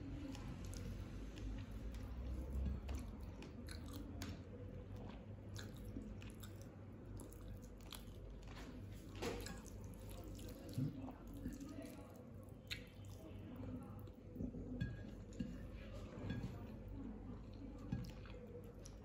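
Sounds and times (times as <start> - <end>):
person chewing food: 0.1 - 13.2.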